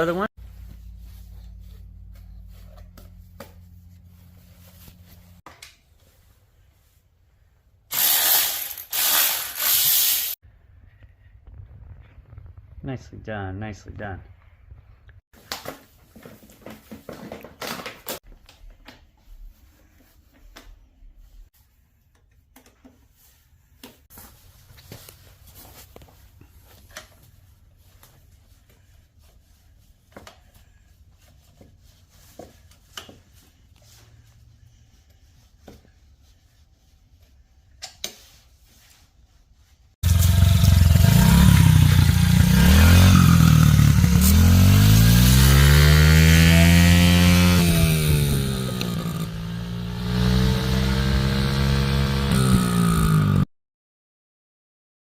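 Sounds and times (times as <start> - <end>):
small motorbike engine revving: 7.9 - 10.4, 40.0 - 53.5.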